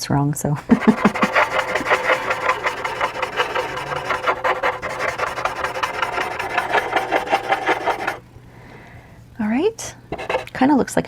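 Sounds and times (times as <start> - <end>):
charcoal pencil scratching on paper: 0.6 - 8.2, 10.2 - 10.6.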